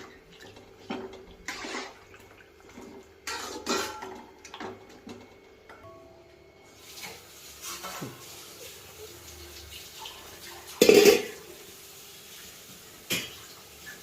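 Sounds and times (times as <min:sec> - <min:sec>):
utensils clattering on pots: 0:00.0 - 0:05.9, 0:07.0 - 0:08.4, 0:10.6 - 0:11.5, 0:13.0 - 0:14.0.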